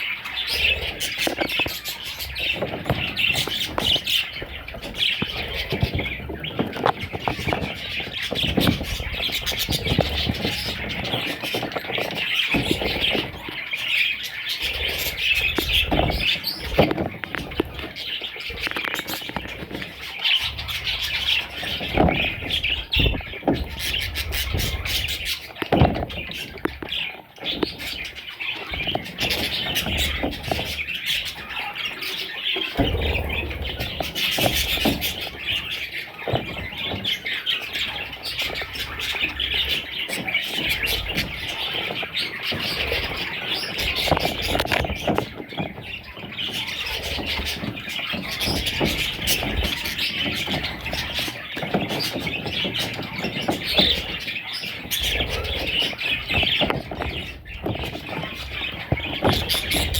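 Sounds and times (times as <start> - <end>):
bird chicks chirping raspily: 0.0 - 59.9.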